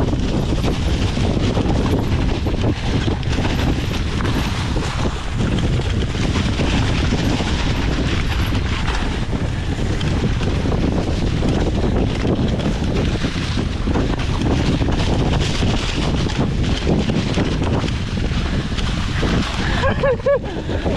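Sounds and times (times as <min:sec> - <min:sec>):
wind buffeting microphone: 0:00.0 - 0:20.9.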